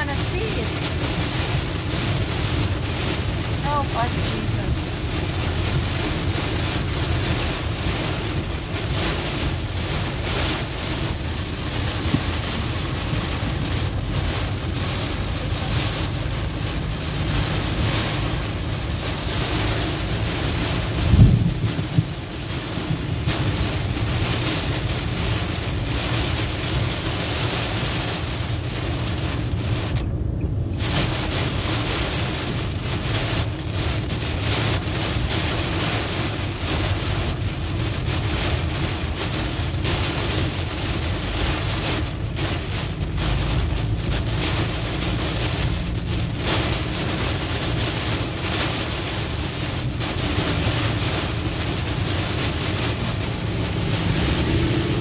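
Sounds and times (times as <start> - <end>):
heavy rain on vehicle windshield: 0.0 - 55.0
road and tyre-spray noise: 0.0 - 55.0.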